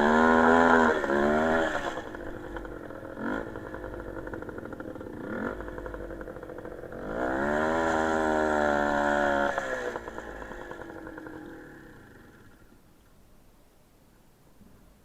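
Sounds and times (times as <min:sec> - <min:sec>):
small motorcycle engine revving: 0:00.0 - 0:12.8.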